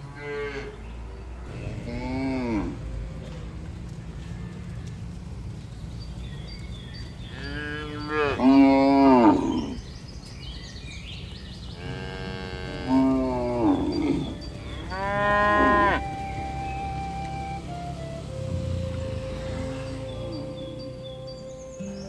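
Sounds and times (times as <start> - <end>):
steady low rumble: 1.4 - 7.4
cattle mooing: 1.5 - 3.6, 7.3 - 9.8, 11.8 - 16.1, 18.5 - 21.0.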